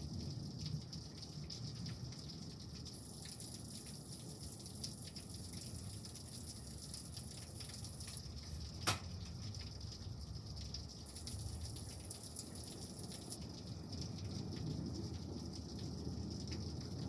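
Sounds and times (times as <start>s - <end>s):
steady rain falling: 0.0s - 17.0s
drips and taps: 0.6s - 17.0s.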